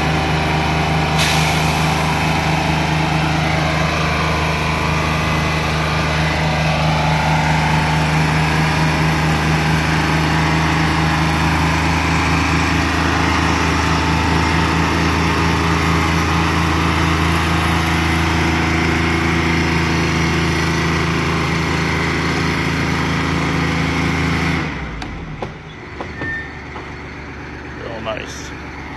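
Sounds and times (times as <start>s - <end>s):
truck engine running steadily: 0.0s - 28.9s.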